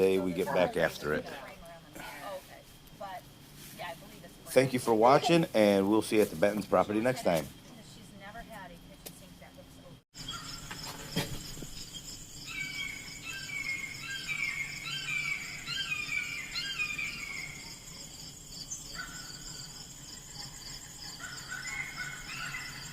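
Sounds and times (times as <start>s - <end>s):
high insect trill: 0.0s - 22.9s
bird chirping: 10.2s - 22.9s.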